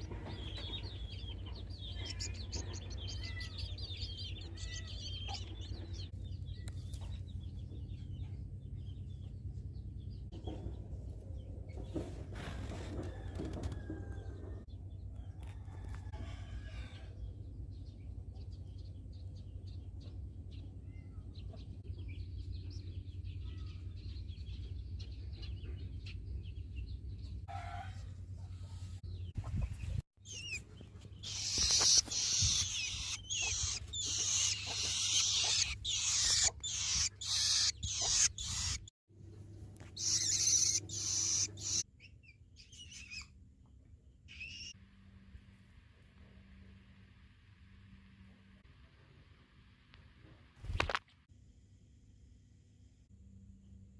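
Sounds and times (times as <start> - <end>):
nestlings begging calls: 0.0 - 6.1, 30.2 - 38.9, 39.8 - 41.8, 44.3 - 44.7.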